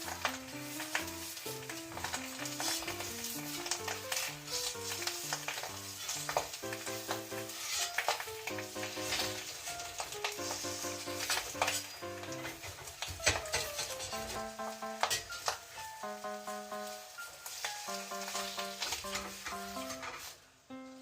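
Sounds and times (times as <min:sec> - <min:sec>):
oil sizzling in frying pan: 0:00.0 - 0:21.0
utensil scraping pan: 0:00.1 - 0:08.2
melodic tune with bass: 0:14.2 - 0:15.1, 0:15.9 - 0:20.0.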